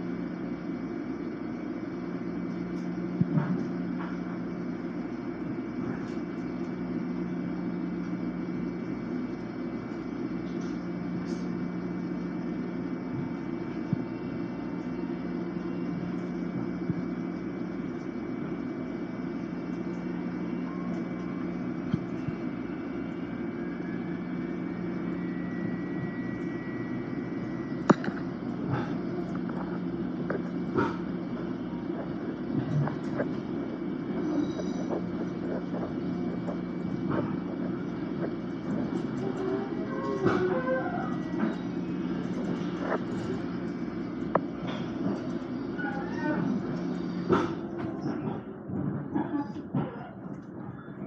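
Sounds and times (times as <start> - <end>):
electric railcar interior drone: 0.0 - 51.0
faint whine rising in pitch: 10.7 - 44.5.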